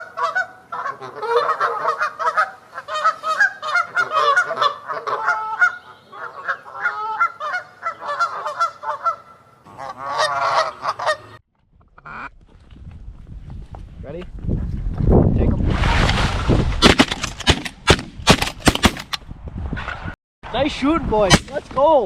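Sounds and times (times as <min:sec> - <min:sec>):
geese honking: 0:00.0 - 0:11.4.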